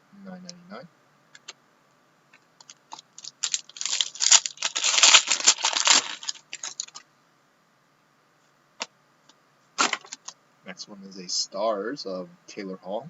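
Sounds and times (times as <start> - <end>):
plastic wrapper crinkling and tearing: 2.6 - 7.0.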